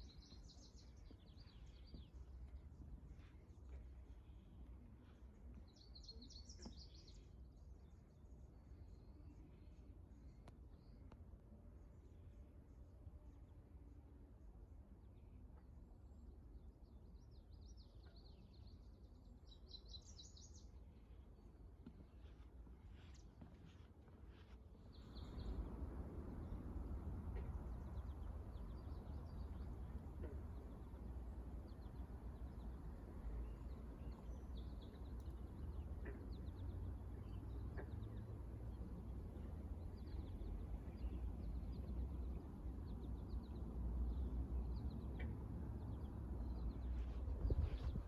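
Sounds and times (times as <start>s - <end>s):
songbird chirps: 0.0s - 11.2s, 16.1s - 48.0s
low outdoor rumble: 24.9s - 48.0s.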